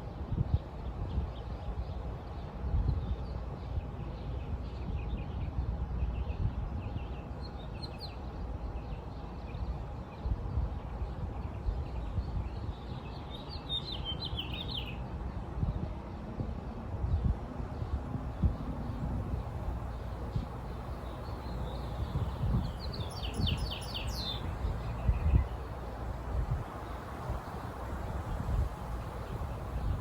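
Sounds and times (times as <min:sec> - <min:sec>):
small birds chirping: 0:10.9 - 0:15.0, 0:17.8 - 0:30.0.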